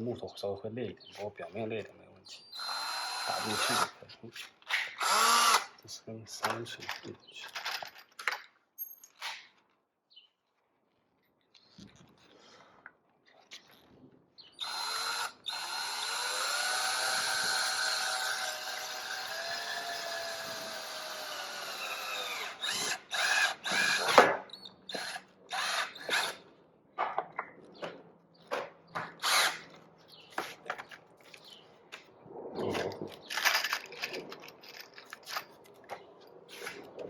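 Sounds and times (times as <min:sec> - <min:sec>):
cordless drill driving a screw: 0:02.6 - 0:04.0, 0:04.9 - 0:05.7, 0:14.6 - 0:26.4, 0:29.2 - 0:29.8.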